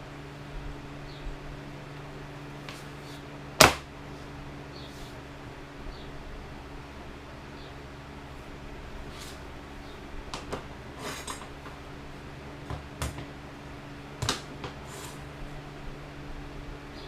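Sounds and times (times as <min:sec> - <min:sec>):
steady electrical hum: 0:00.0 - 0:17.0
scraping on workbench: 0:09.1 - 0:09.4, 0:11.0 - 0:11.8, 0:14.6 - 0:15.3.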